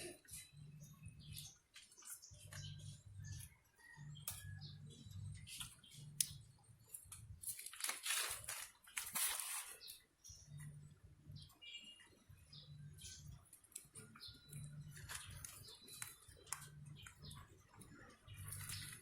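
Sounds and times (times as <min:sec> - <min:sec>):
small clicks and scratches: 0:05.4 - 0:10.7, 0:13.0 - 0:19.0.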